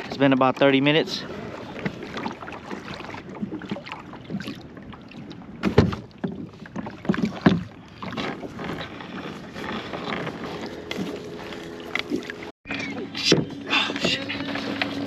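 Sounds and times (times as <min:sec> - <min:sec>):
water splashing: 0:00.0 - 0:15.0
knocks against kayak hull: 0:05.6 - 0:07.7.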